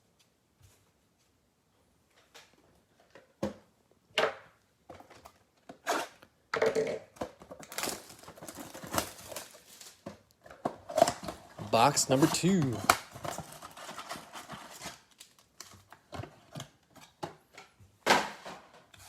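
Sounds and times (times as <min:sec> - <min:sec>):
wrapper crinkling and rustling: 0:07.5 - 0:10.1, 0:10.9 - 0:16.6.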